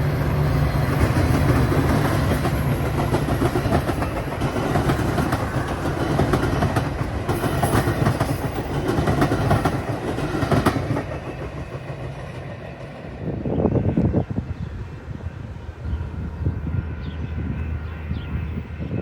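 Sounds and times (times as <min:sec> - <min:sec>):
train wheels clattering over rails: 0:00.0 - 0:13.3.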